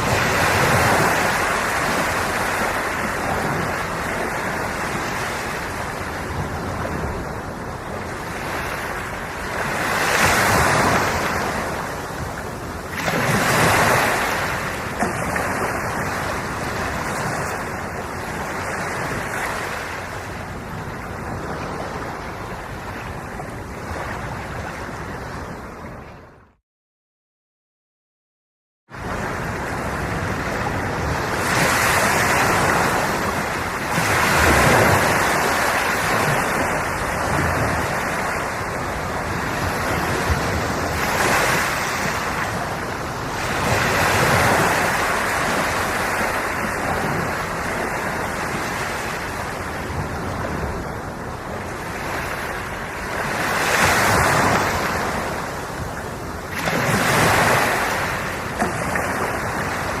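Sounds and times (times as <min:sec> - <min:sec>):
waves breaking on shore: 0:00.0 - 0:26.4, 0:28.9 - 1:00.0.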